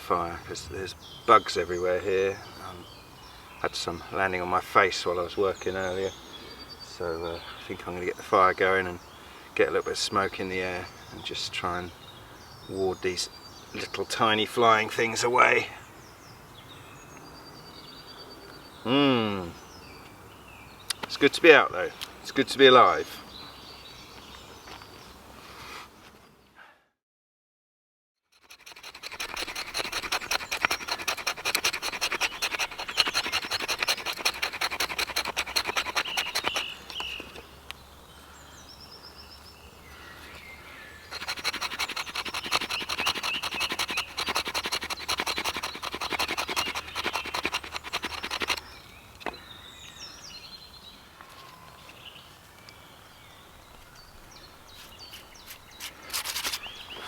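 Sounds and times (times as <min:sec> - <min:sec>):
fast tool scraping: 0:28.4 - 0:37.2, 0:41.1 - 0:48.8, 0:55.7 - 0:56.8.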